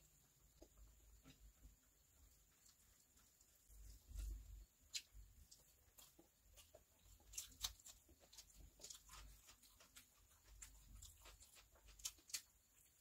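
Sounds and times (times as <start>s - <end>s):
wet chewing and lip smacks: 2.3s - 13.0s
fingers working rice on plate: 2.6s - 13.0s.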